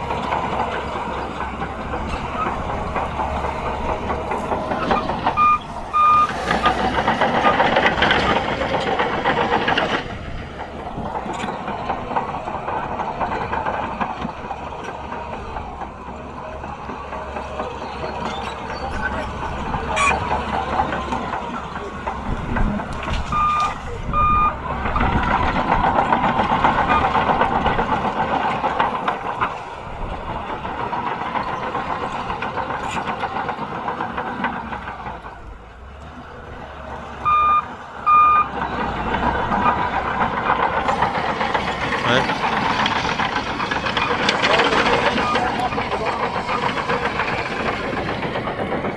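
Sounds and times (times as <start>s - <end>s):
bulldozer diesel engine running: 0.0s - 48.9s
reversing alarm beeps: 5.4s - 6.4s, 23.3s - 24.6s, 37.2s - 38.5s, 45.0s - 45.6s.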